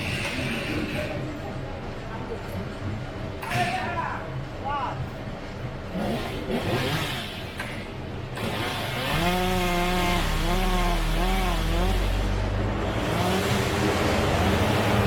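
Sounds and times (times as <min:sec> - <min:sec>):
chainsaw revving and cutting: 0:05.9 - 0:07.8, 0:08.4 - 0:15.0.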